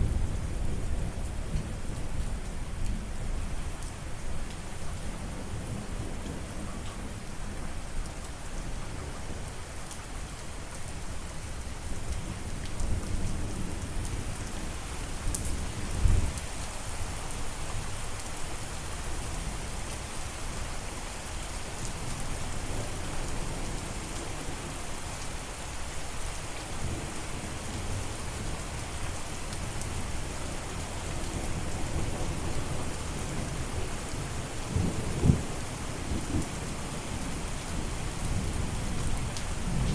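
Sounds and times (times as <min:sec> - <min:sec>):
steady rain falling: 0:00.0 - 0:39.9
low rolls of thunder: 0:34.7 - 0:36.6, 0:38.3 - 0:39.9.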